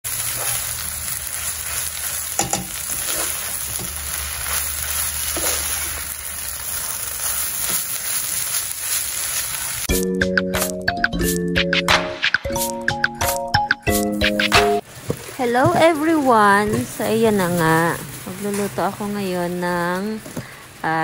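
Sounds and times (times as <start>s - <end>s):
food sizzling in a pan: 0.0s - 10.0s, 14.8s - 21.0s
spatula scraping pan: 1.6s - 6.1s.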